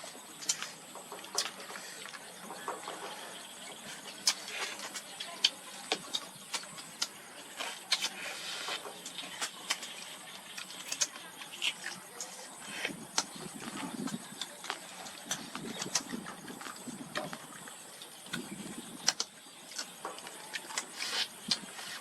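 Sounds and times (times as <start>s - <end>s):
crab shell crunching: 4.0s - 17.5s, 18.3s - 22.0s.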